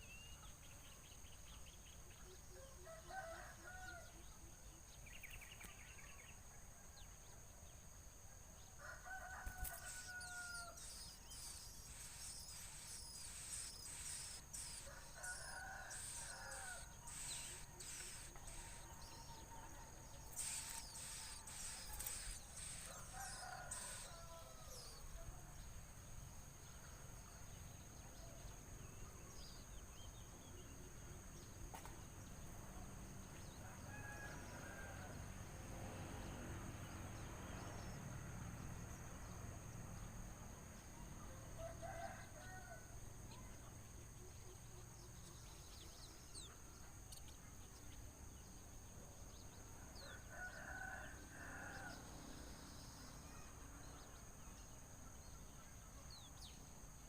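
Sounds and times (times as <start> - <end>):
faint rooster crowing: 2.5 - 4.4, 8.7 - 25.6, 33.4 - 35.6, 41.0 - 43.0, 49.9 - 53.6
high bird chirps: 9.7 - 19.3, 20.2 - 25.0.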